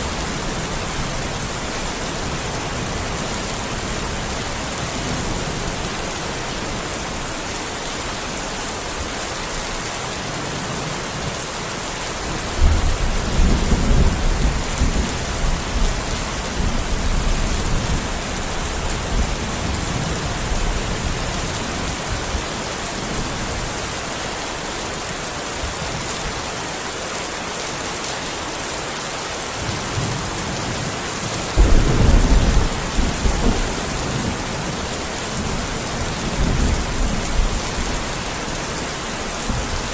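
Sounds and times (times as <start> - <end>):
rain hiss: 0.0 - 39.9
thunder rolling: 31.6 - 35.6.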